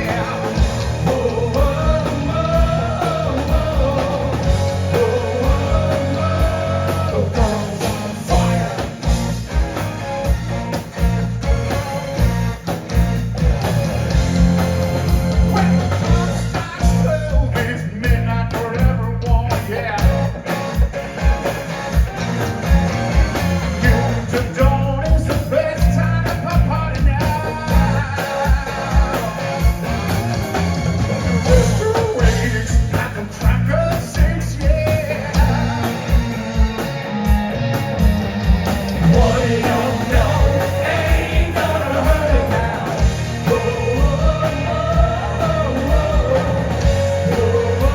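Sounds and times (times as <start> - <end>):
person singing: 0.0 - 9.1, 31.5 - 36.3, 39.0 - 47.9
bass guitar: 0.0 - 47.9
drums keeping a beat: 0.0 - 47.9
electric guitars: 0.0 - 47.9.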